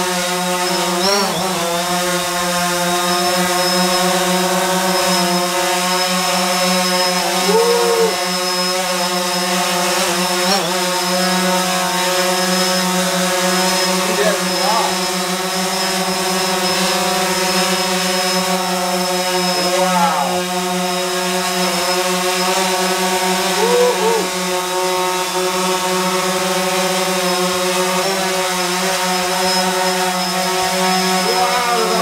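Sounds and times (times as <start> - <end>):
drone motors buzzing: 0.0 - 32.0.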